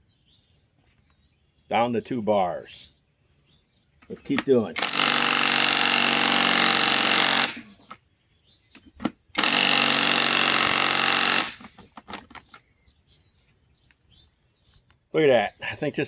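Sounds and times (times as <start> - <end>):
impact wrench hammering: 4.8 - 7.7, 9.4 - 11.8.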